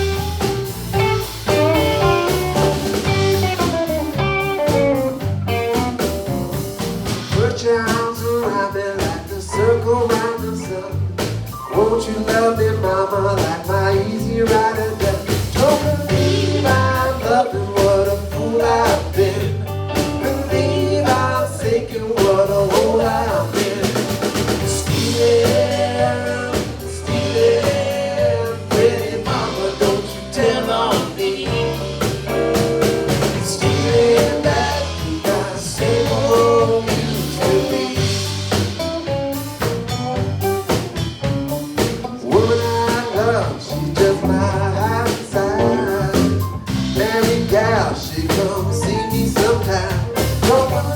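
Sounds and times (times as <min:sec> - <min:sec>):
blues band playing: 0:00.0 - 0:50.9
drum kit beat: 0:00.0 - 0:50.9
person singing: 0:07.3 - 0:32.4, 0:33.2 - 0:38.8, 0:42.2 - 0:50.9.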